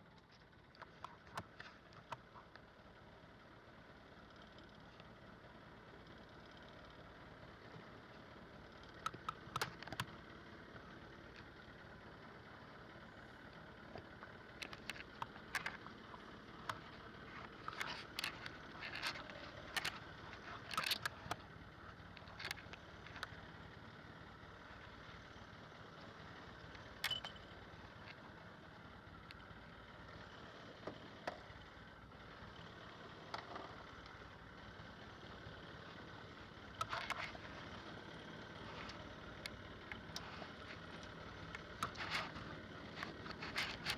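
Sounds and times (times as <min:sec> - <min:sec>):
clicks and knocks of gear: 0:00.0 - 0:02.7, 0:08.8 - 0:10.2, 0:13.5 - 0:23.5, 0:26.7 - 0:28.2, 0:36.8 - 0:37.7, 0:38.6 - 0:43.9.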